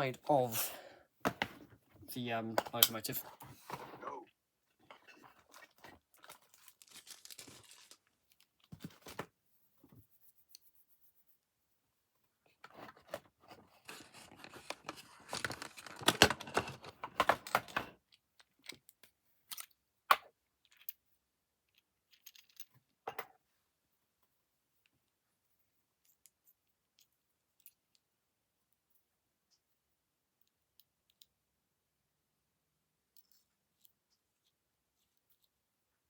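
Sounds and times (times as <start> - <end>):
plastic parts scraping and rustling: 4.8 - 9.3, 12.5 - 18.9.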